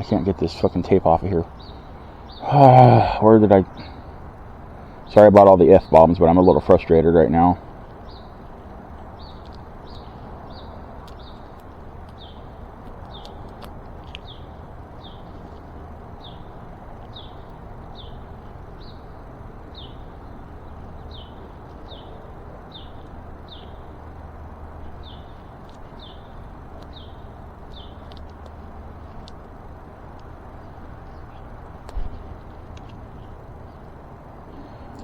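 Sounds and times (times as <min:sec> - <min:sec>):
bird chirping: 0:00.0 - 0:35.0
low background noise: 0:00.0 - 0:35.0
faint clicks: 0:09.4 - 0:10.1.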